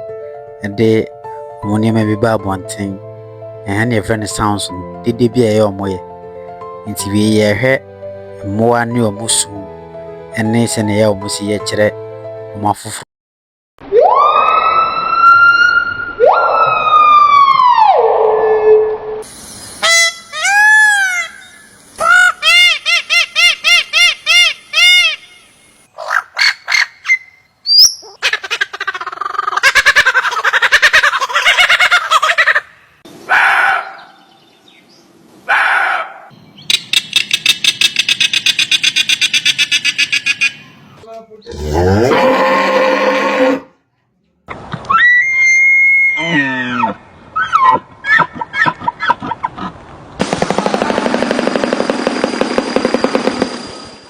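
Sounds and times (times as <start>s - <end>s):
rising and falling animal calls: 13.8s - 18.9s, 19.8s - 34.4s, 35.5s - 43.7s, 44.9s - 49.7s
quick repeated chirping: 36.6s - 40.7s
fast rattling pulse: 50.2s - 54.0s.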